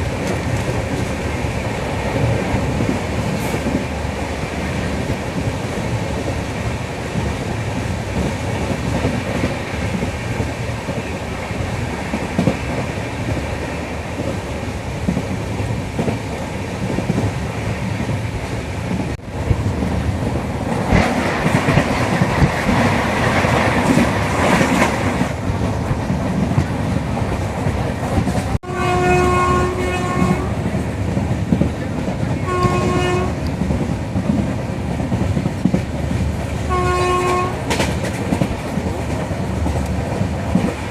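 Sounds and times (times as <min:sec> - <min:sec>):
train wheels clickety-clack: 0:00.0 - 0:40.9
train horn: 0:28.6 - 0:30.6, 0:32.4 - 0:33.5, 0:36.7 - 0:37.8.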